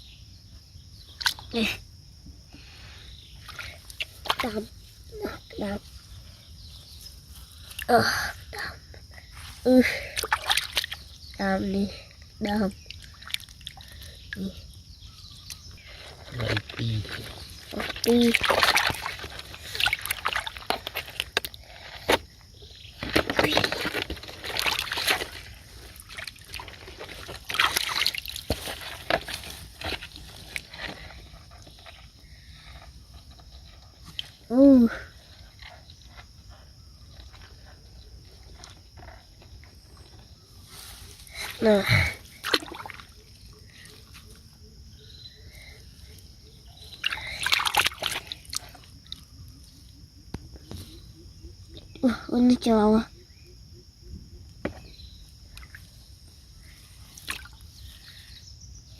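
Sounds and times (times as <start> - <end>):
shallow water sloshing and splashing: 9.4 - 11.2, 12.8 - 14.8, 15.8 - 34.4, 40.8 - 44.4, 46.8 - 49.4, 55.4 - 58.2
sharp water splashes: 10.2 - 11.0, 17.7 - 21.3, 24.4 - 29.4, 42.4 - 43.2, 47.0 - 48.8.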